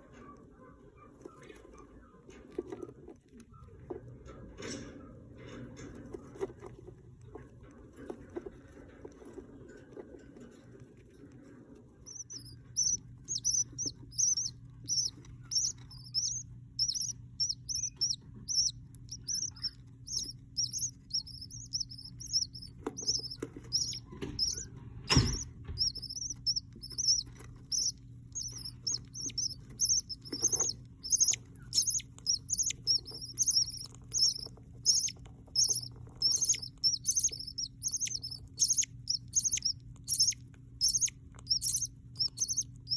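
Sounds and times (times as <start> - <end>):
chicks cheeping: 12.0 - 42.9
low hum: 12.0 - 42.9.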